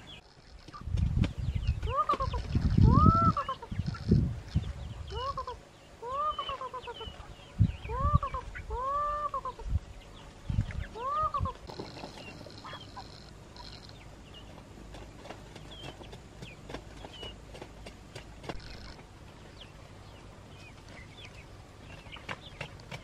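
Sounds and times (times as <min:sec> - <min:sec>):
poultry calling: 0:01.7 - 0:14.6, 0:18.4 - 0:22.7.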